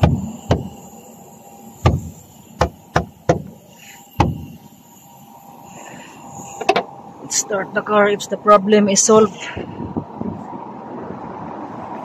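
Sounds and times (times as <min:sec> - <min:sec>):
sharp knocks of hard objects: 0:00.0 - 0:00.8, 0:01.8 - 0:03.6, 0:04.2 - 0:04.5.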